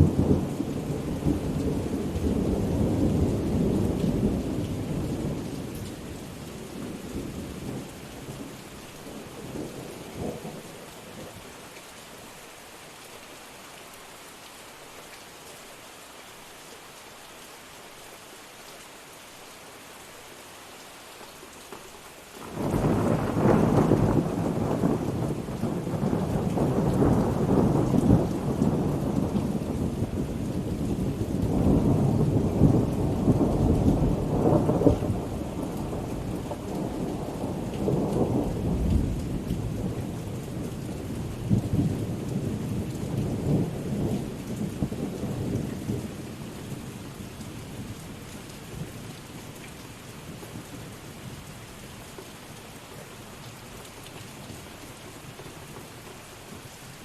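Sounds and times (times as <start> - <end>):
steady rain: 0.0 - 57.0
rolling thunder: 22.4 - 46.2.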